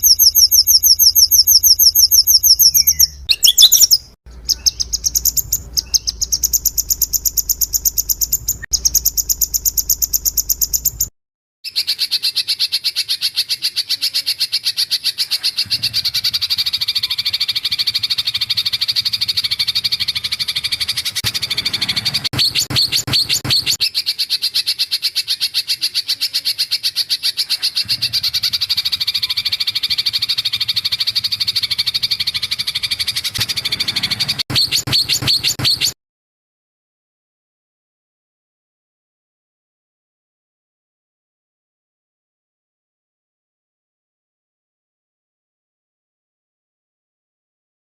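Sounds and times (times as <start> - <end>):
songbird song with rattling trill: 0.0 - 11.1, 11.7 - 36.0.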